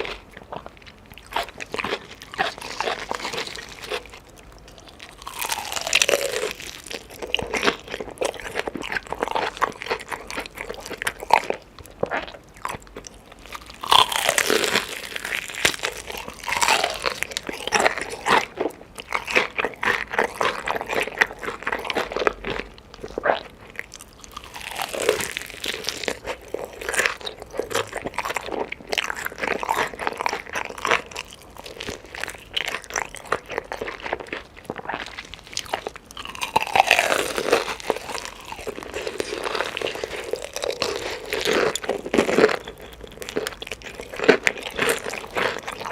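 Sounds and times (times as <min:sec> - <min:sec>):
chicken being crunched and chewed: 0:24.2 - 0:45.9.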